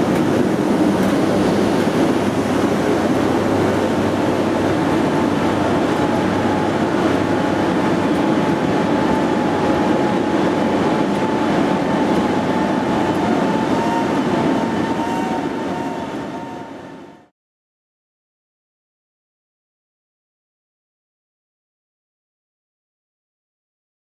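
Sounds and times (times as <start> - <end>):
steady whine: 0.0 - 17.3
train rumbling past: 0.0 - 17.3.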